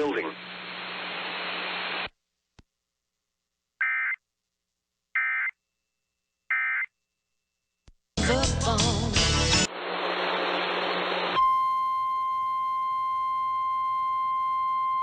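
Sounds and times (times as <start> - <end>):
loud music: 8.2 - 9.7.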